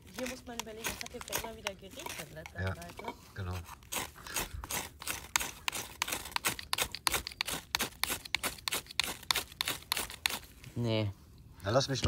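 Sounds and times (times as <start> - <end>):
fire steel scraping: 0.0 - 11.1.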